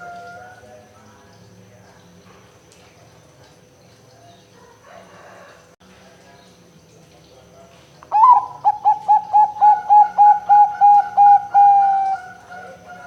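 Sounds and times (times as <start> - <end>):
dove cooing: 8.1 - 13.0.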